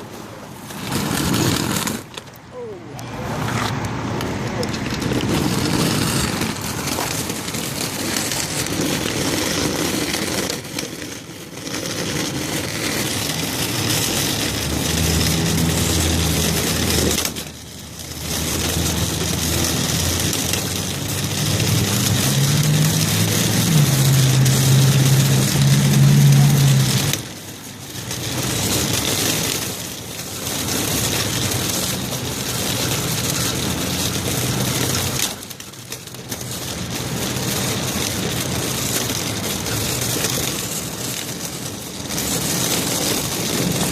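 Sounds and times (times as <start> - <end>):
constant rushing noise: 0.0 - 43.9
fire truck engine idling: 12.3 - 43.9.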